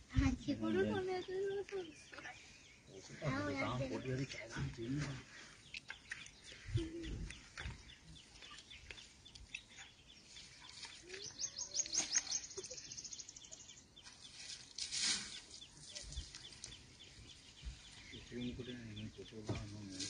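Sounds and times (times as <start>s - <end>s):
high bird chirps: 5.6s - 19.6s.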